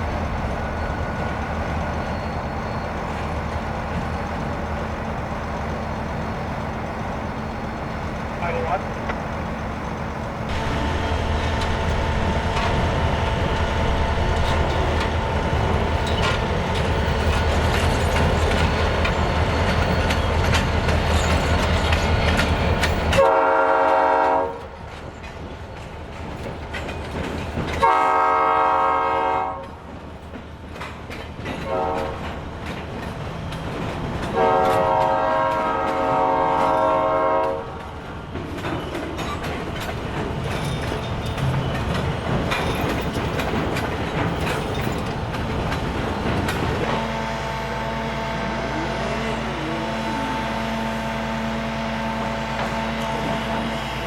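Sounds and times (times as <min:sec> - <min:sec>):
diesel locomotive rumbling: 0:00.0 - 0:54.0
train air horn blasts: 0:10.5 - 0:16.8, 0:23.2 - 0:24.8, 0:27.8 - 0:29.8, 0:31.6 - 0:32.4, 0:34.3 - 0:37.8, 0:47.0 - 0:54.0.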